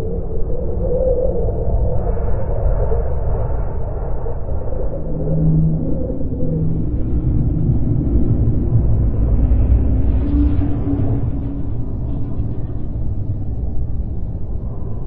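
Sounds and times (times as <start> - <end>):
faint wavering hum: 0.0 - 15.0
low steady rumble: 4.8 - 15.0.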